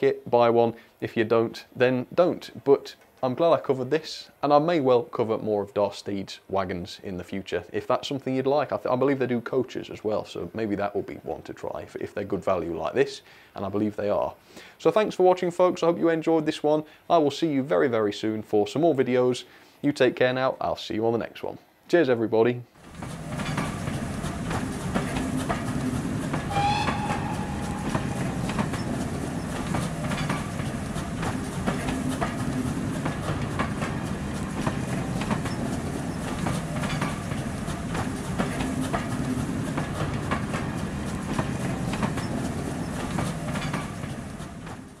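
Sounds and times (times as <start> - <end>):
train coaches rumbling past: 22.8 - 45.0
wheels clicking over rail joints: 22.8 - 45.0
train whistle: 26.4 - 29.0.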